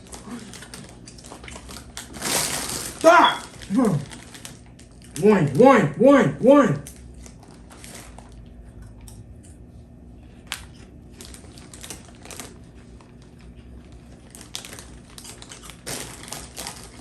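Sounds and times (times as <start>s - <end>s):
chip bag crinkling: 0.0s - 5.6s, 6.8s - 8.8s, 10.2s - 17.0s
chips crunching while eaten: 0.0s - 9.2s, 10.4s - 17.0s.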